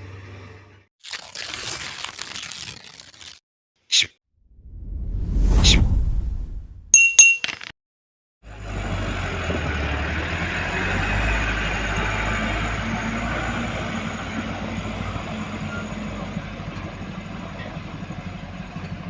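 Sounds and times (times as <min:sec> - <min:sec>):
diesel engine running: 0:08.5 - 0:19.0.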